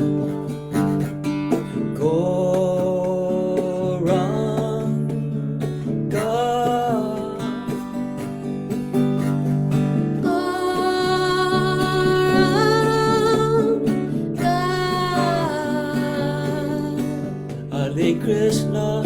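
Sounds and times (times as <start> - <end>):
plucked string accompaniment: 0.0 - 19.0
person singing long sliding notes: 10.2 - 13.8, 14.4 - 17.2.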